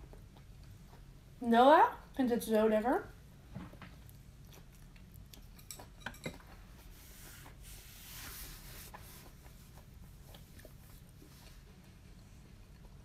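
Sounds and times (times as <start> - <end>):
faint chewing: 0.0 - 1.4, 3.8 - 13.0.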